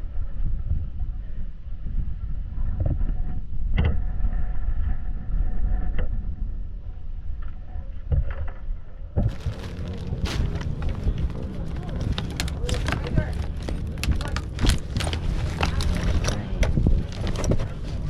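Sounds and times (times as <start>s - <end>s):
wind rumbling on microphone: 0.0s - 18.0s
dirt bike engines running: 9.3s - 18.0s.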